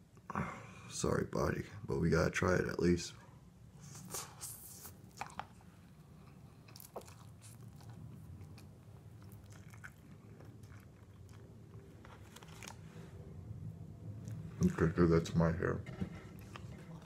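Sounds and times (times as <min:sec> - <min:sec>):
steady low hum: 0:00.0 - 0:17.0
noodles being chewed: 0:04.1 - 0:12.9, 0:14.1 - 0:14.9.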